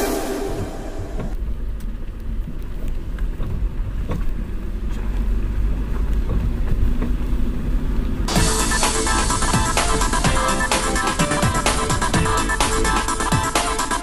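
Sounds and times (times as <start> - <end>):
music: 0.0 - 1.3, 8.3 - 14.0
vehicle engine and road rumble: 0.0 - 14.0.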